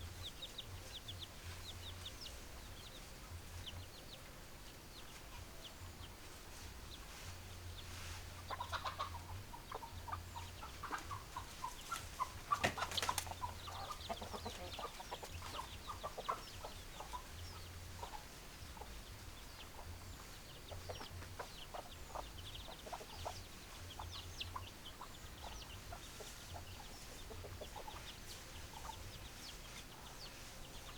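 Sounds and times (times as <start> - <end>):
hens clucking: 8.2 - 30.9.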